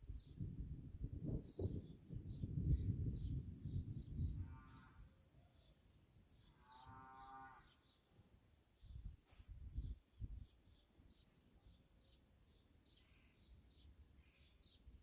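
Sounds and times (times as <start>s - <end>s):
faint high chirp: 1.4s - 1.8s, 6.3s - 7.4s
distant animal calling: 6.4s - 7.8s.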